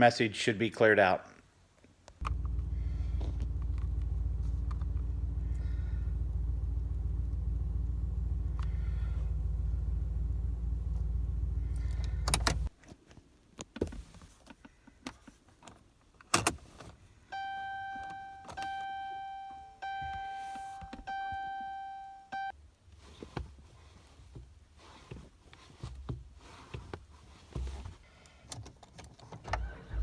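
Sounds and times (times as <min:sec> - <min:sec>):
low hum: 0:02.2 - 0:12.7
dashboard warning chime: 0:17.3 - 0:22.5.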